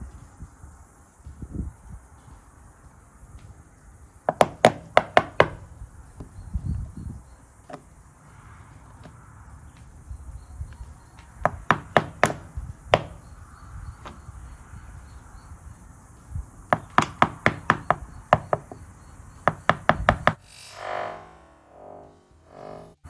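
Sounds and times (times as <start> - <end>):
sharp taps on door lock: 4.3 - 5.6, 11.5 - 13.2, 16.8 - 18.8.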